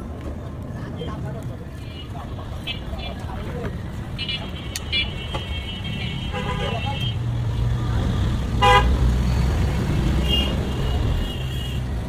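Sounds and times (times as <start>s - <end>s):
road traffic rumble: 0.0s - 12.0s
vehicle horn toot: 4.2s - 7.2s, 8.6s - 9.0s, 10.2s - 11.9s.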